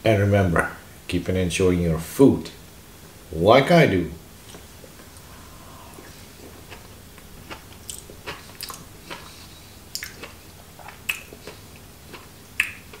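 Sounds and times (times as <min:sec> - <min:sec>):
man chewing food: 0:04.4 - 0:13.0
wet mouth smacks and clicks: 0:07.5 - 0:09.2, 0:09.9 - 0:11.6, 0:12.6 - 0:13.0.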